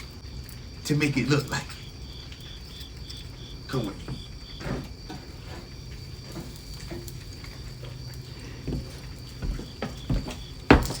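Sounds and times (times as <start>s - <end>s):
footsteps: 3.9s - 11.0s.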